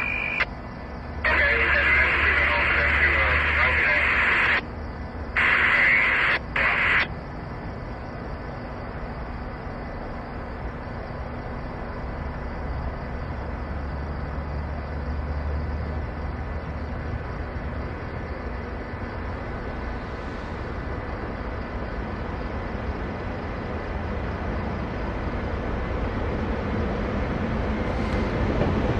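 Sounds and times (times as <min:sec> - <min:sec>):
scanner radio static bursts: 0:00.0 - 0:00.5, 0:01.2 - 0:04.7, 0:05.3 - 0:07.2.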